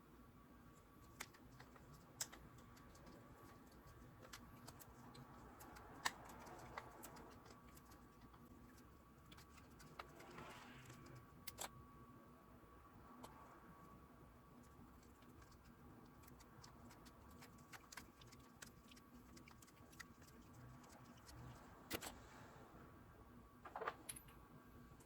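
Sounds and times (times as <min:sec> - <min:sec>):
faint clicks and taps: 0:00.8 - 0:10.3.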